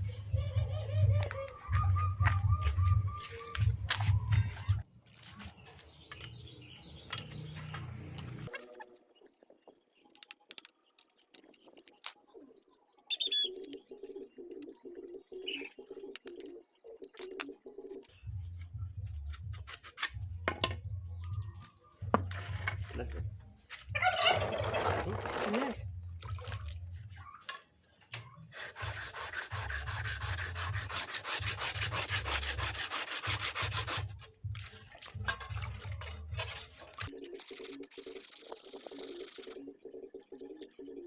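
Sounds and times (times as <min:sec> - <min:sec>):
high bird chirps: 0:00.3 - 0:04.8, 0:11.6 - 0:18.2.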